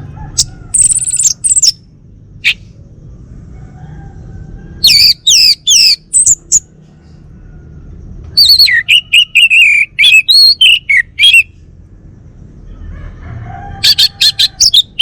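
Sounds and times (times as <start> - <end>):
thrush singing: 8.3 - 11.6.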